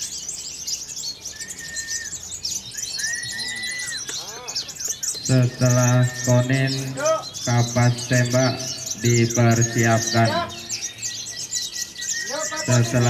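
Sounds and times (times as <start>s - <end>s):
bird whistled notes: 0.0s - 13.0s
songbirds chirping: 0.0s - 13.0s
man speaking: 5.3s - 10.7s, 12.3s - 13.0s.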